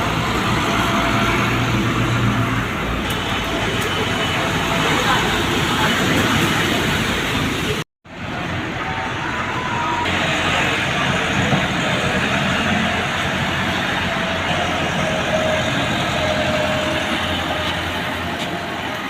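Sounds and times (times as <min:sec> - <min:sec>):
road noise: 0:00.0 - 0:19.0
tractor diesel engine running: 0:00.0 - 0:19.0.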